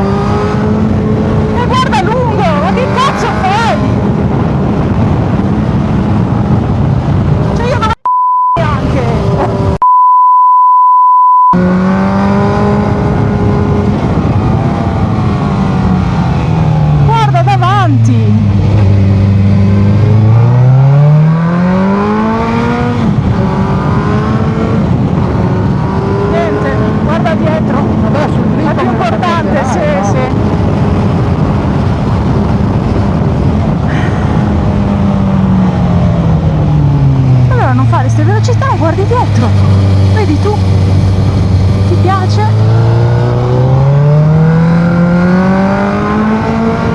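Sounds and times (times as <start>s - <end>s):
wind noise: 0.0s - 8.0s, 8.6s - 9.8s, 11.6s - 46.9s
censor bleep: 8.0s - 8.7s, 9.8s - 11.6s
motorcycle engine running: 22.0s - 46.9s.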